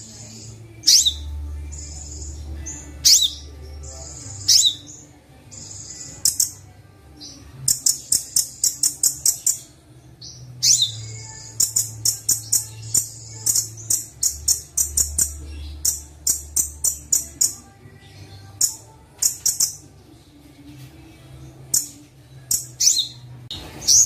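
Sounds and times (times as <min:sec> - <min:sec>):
high ticking bird notes: 0:00.0 - 0:06.6, 0:07.2 - 0:09.7, 0:10.3 - 0:17.7, 0:18.4 - 0:19.8
songbird chirps and whistles: 0:00.0 - 0:20.0, 0:21.7 - 0:24.0.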